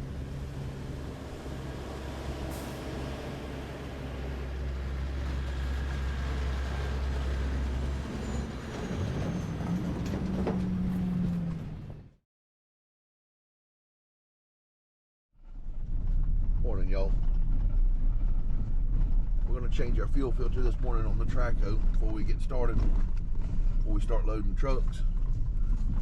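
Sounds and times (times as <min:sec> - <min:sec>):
heavy diesel engine running: 0:00.0 - 0:12.1.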